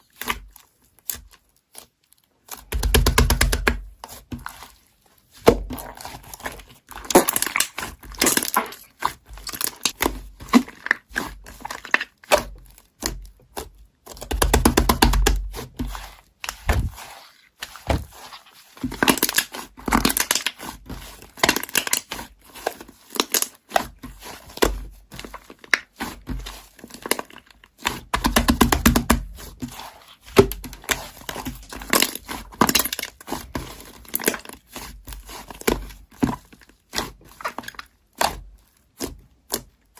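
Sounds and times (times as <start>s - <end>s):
slime crackling and popping: 5.4s - 15.6s, 18.9s - 24.0s, 30.2s - 39.8s.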